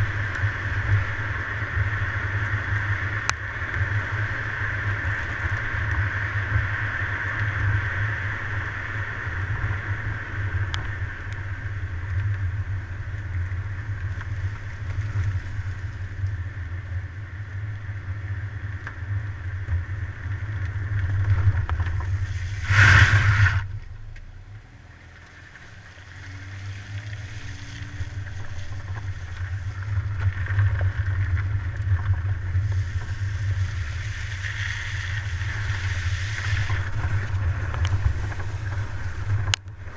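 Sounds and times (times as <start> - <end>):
wind noise: 0.0 - 24.2, 26.8 - 39.9
car engine and road rumble: 0.0 - 39.9
loud rush of noise: 22.2 - 23.8.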